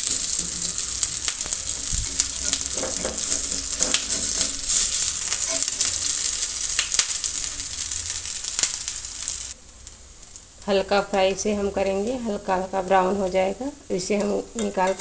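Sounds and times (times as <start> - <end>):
high sizzle of frying: 0.0 - 15.0
metal spatula clicks and scrapes: 0.1 - 5.8.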